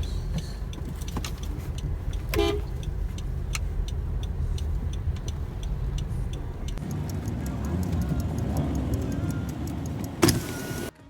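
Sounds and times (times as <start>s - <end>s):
light ticking: 0.0s - 10.9s
car engine and road rumble: 0.0s - 11.0s
car horn toot: 2.2s - 2.9s.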